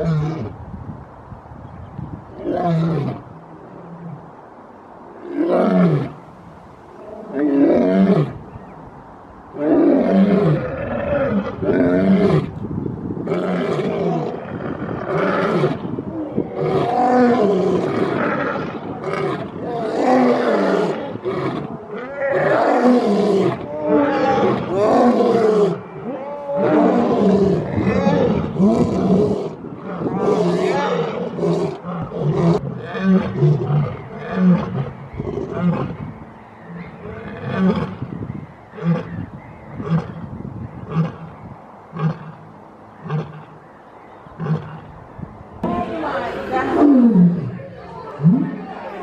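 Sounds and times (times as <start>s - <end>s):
lion roaring: 9.6s - 12.5s, 13.3s - 36.0s.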